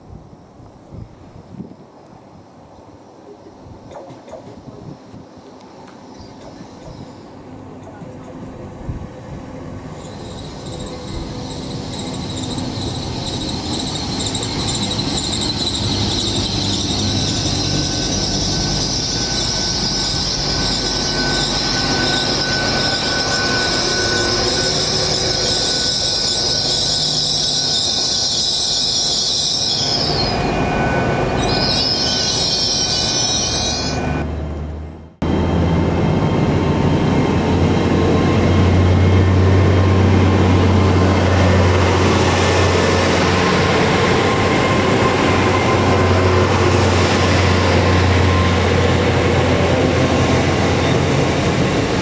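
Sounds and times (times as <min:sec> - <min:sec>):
train drawing in: 0:00.0 - 0:52.0
high-pitched brake squeal: 0:06.0 - 0:08.7, 0:09.6 - 0:34.3, 0:42.3 - 0:51.6.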